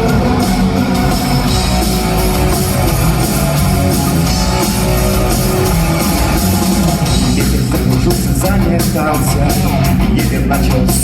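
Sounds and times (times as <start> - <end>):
drum kit: 0.0 - 11.0
electric guitars: 0.0 - 11.0.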